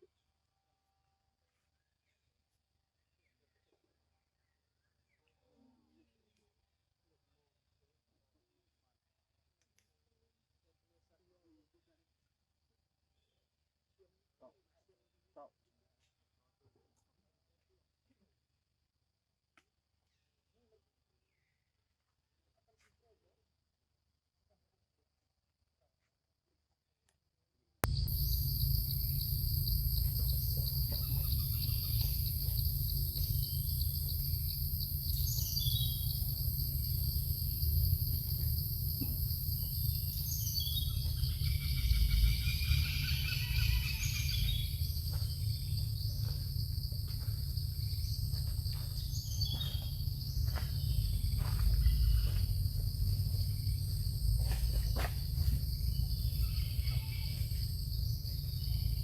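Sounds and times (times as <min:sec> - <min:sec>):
insects trilling: 0:27.8 - 0:59.0
low rumble: 0:27.8 - 0:59.0
birds chirping: 0:27.9 - 0:46.6, 0:47.8 - 0:53.8.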